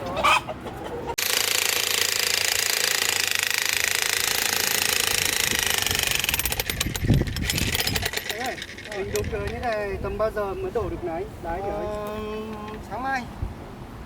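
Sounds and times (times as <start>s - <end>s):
jackhammer chiselling concrete: 1.2s - 9.6s.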